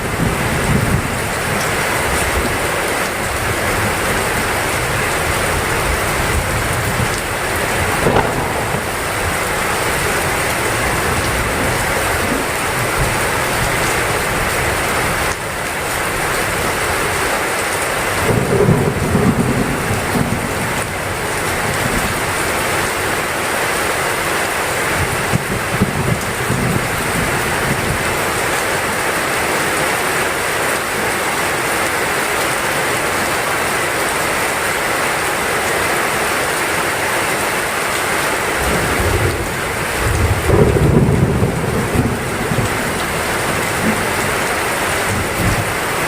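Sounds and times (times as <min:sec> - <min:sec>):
thunder rumbling: 0:00.0 - 0:02.6, 0:03.2 - 0:15.2, 0:18.2 - 0:22.5, 0:38.6 - 0:46.0
heavy rain: 0:00.0 - 0:46.0.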